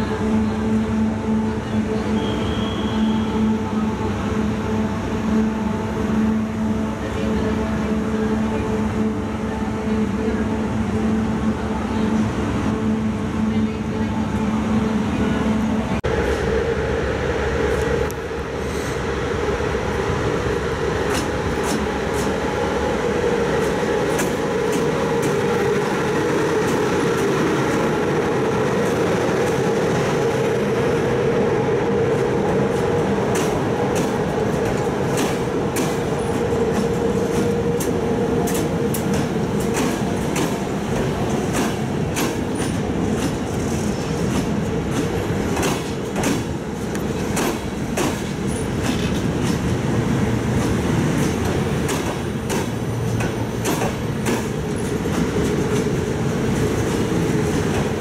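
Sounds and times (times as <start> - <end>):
train coaches rumbling by: 0.0 - 58.0
wheels clicking over rail joints: 50.6 - 58.0.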